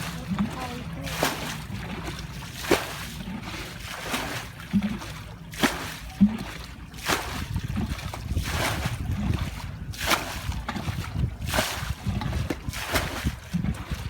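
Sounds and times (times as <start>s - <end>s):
shallow water splashing: 0.0s - 14.0s.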